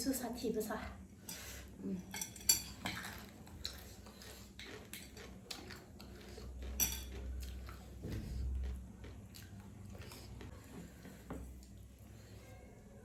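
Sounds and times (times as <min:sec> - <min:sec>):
utensils clinking against bowl: 0:01.2 - 0:03.3, 0:06.6 - 0:07.3.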